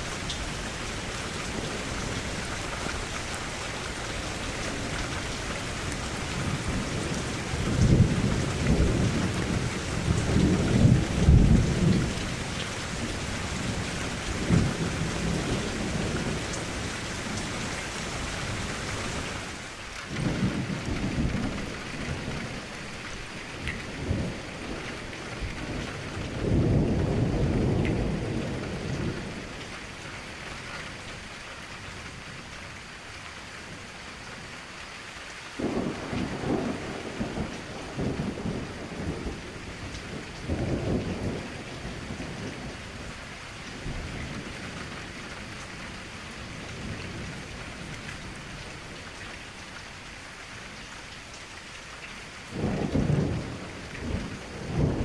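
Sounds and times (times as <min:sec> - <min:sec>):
rain against a window: 0:00.0 - 0:55.0
distant thunder rumbling: 0:04.0 - 0:18.6, 0:35.6 - 0:43.1, 0:52.5 - 0:55.0.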